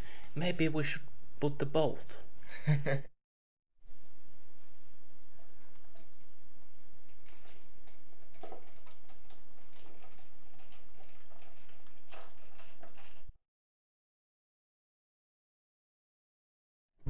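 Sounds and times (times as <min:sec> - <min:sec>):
steady low hum: 0:00.0 - 0:03.1, 0:03.8 - 0:13.3.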